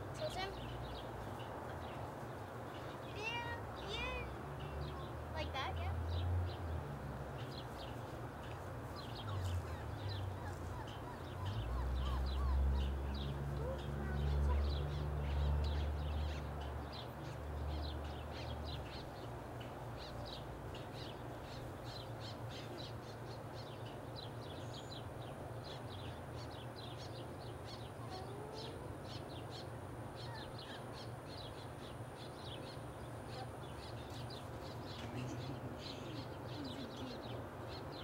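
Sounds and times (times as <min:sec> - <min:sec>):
high-pitched bird calls: 0:09.1 - 0:16.6.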